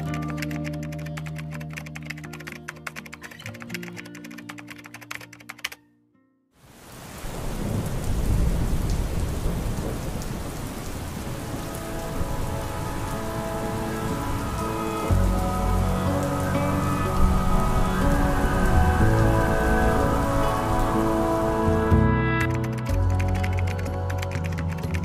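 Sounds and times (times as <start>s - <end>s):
computer keyboard typing: 0.0s - 5.8s, 22.4s - 25.0s
soft music: 0.0s - 6.5s, 11.1s - 25.0s
heavy rain: 6.6s - 22.1s
low rumble of thunder: 7.3s - 11.5s
soft sustained music notes: 11.3s - 25.0s.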